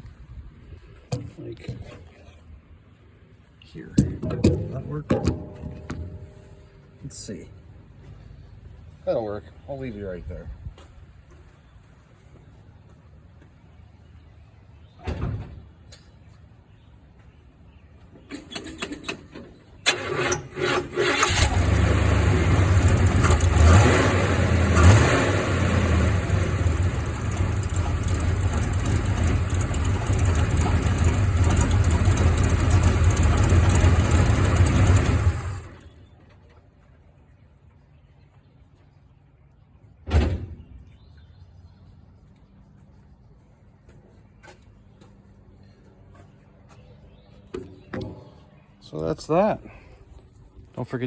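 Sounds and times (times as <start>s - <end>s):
engine cranking: 19.8s - 35.9s
engine revving and running: 19.9s - 35.8s
thump: 40.1s - 40.6s.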